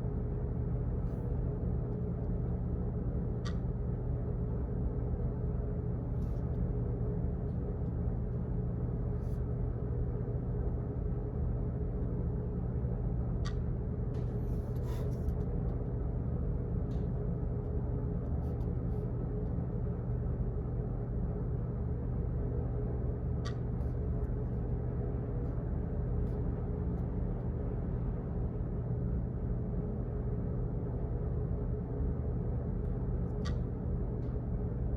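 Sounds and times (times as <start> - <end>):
office background hum: 0.0 - 34.9
faint ticks and clicks: 3.4 - 3.7.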